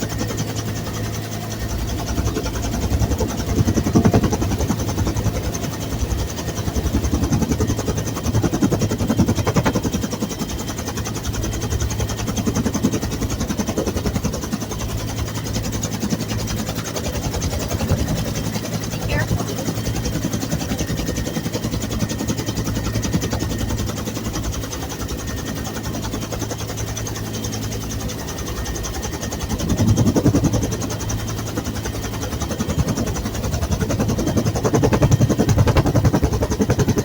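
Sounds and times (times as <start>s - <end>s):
helicopter turbine drone: 0.0s - 37.0s
rotor blades chopping: 2.2s - 10.3s.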